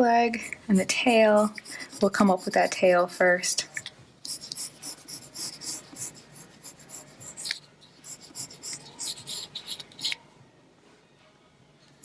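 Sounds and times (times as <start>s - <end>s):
pencil scratching on paper: 0.3s - 10.2s.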